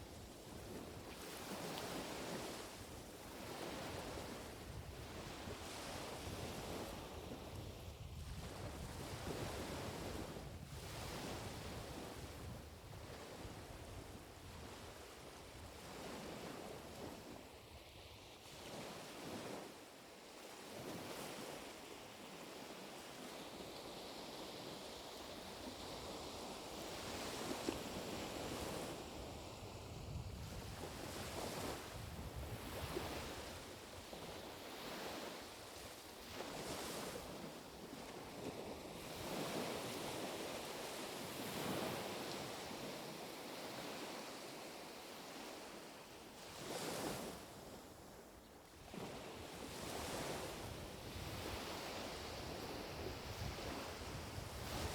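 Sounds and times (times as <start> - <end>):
small waves washing onto shore: 18.4 - 54.9.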